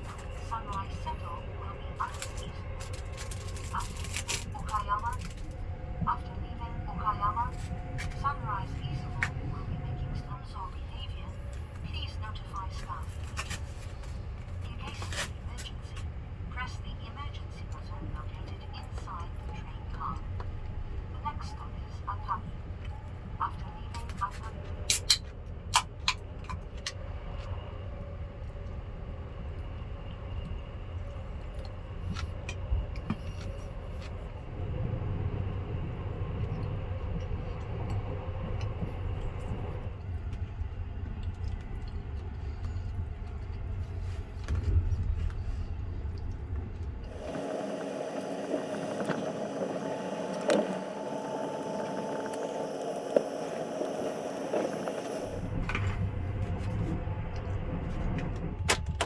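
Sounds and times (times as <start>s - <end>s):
train running rumble: 0.0s - 59.0s
steady hum with held tones: 16.0s - 58.6s.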